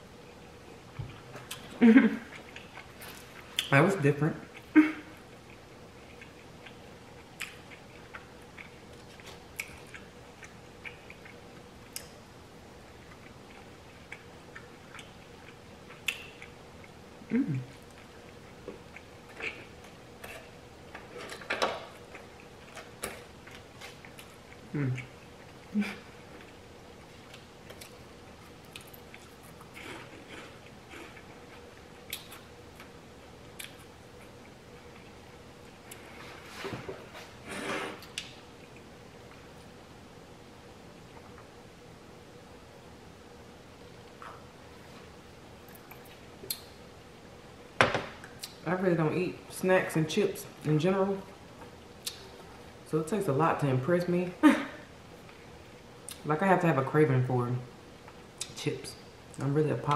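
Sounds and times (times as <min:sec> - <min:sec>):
faint steady hum: 0:00.0 - 0:59.9
close chewing of food: 0:00.2 - 0:03.8, 0:04.5 - 0:36.2
person chewing chicken wings: 0:04.6 - 0:12.1, 0:13.0 - 0:20.6.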